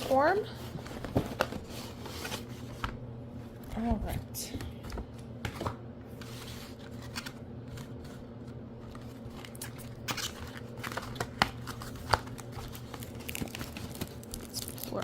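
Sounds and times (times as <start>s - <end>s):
packaging rustling: 0.0s - 3.0s, 6.1s - 15.0s.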